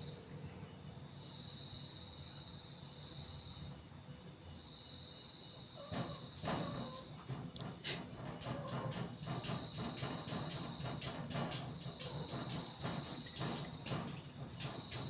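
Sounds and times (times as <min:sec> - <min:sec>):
crickets chirping: 0:00.0 - 0:15.0
sharp knocks and clatter: 0:05.8 - 0:15.0.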